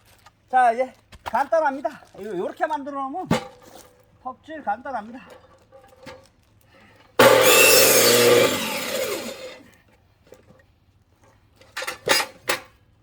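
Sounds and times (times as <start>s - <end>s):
electric saw cutting log: 7.2s - 9.7s.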